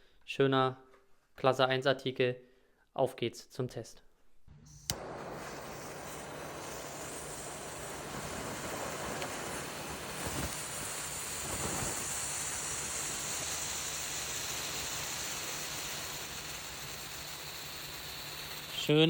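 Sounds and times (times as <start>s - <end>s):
firework hissing: 4.9s - 19.0s.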